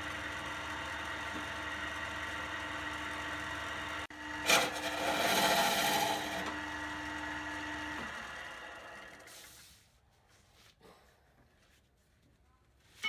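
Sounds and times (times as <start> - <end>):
lathe motor hum: 0.0 - 9.3
tool scraping spinning wood: 0.6 - 9.6.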